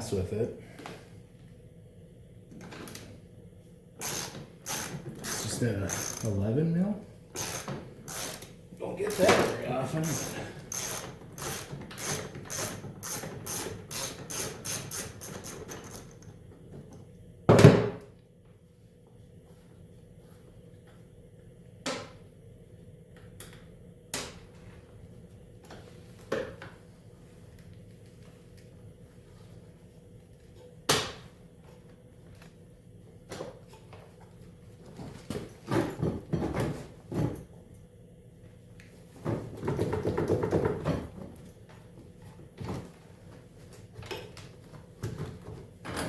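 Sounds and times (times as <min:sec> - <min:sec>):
ratchet wrench clicking: 0:04.0 - 0:06.4, 0:07.4 - 0:16.2
tools clanking on metal: 0:04.0 - 0:06.4, 0:07.4 - 0:16.1.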